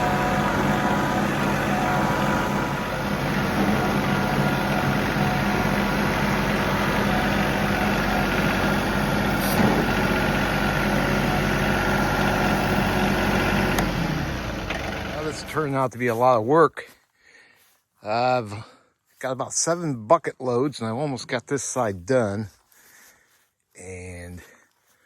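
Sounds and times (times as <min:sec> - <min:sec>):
tractor diesel engine running: 0:00.0 - 0:16.8.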